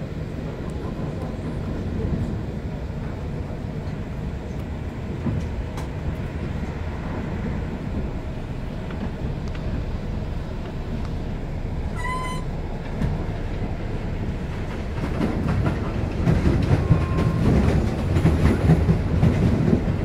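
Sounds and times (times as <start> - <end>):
train rumble inside carriage: 0.0 - 20.0
short high beep: 12.0 - 12.5.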